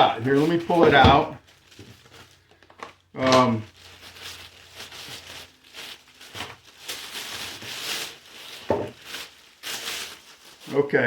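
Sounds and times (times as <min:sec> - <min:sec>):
handling noises: 0:00.0 - 0:10.8
shopping bag rustling: 0:00.0 - 0:10.9.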